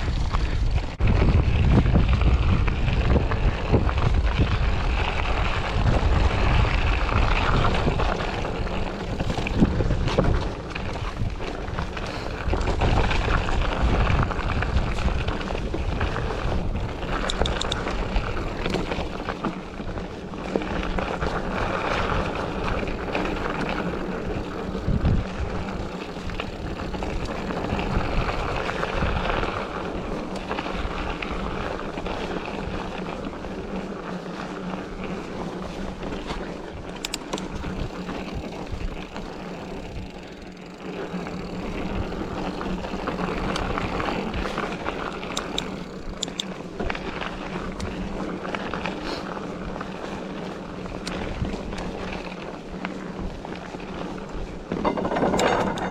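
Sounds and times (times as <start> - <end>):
wind on microphone: 0.0 - 20.0, 20.8 - 33.8
bike road noise: 0.0 - 55.9.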